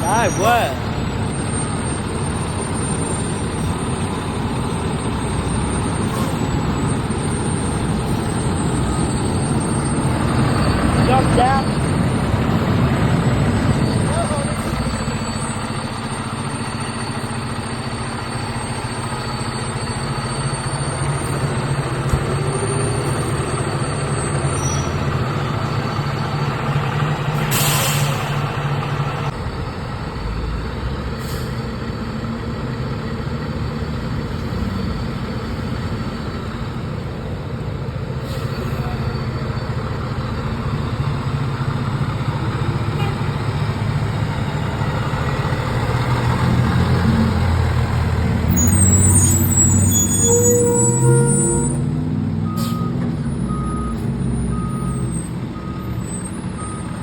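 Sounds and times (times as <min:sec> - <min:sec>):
fire truck engine running: 0:00.0 - 0:57.0
air brake hiss: 0:27.4 - 0:28.3, 0:31.2 - 0:31.6, 0:38.2 - 0:38.8.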